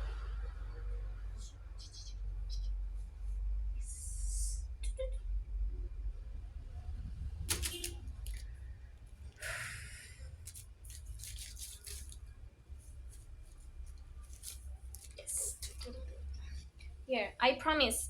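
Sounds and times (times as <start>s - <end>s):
low rumble: 3.4s - 9.4s.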